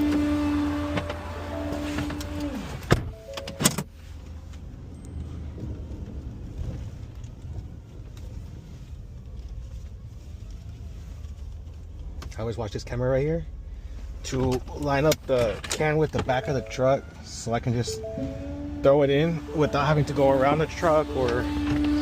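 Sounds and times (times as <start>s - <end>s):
garbage truck engine rumbling: 13.4s - 22.0s.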